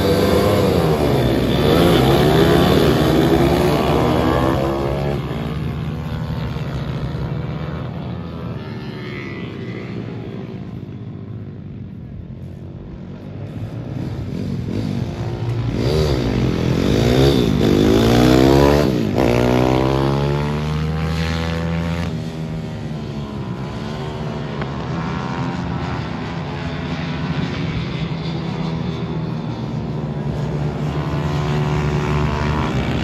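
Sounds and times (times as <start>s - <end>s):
motorcycle engine revving: 0.0s - 10.8s, 13.4s - 28.8s.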